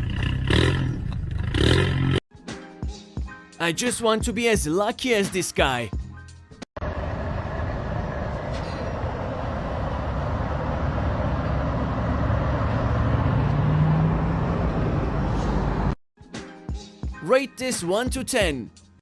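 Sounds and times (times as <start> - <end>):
vehicle engine driving: 6.8 - 16.0.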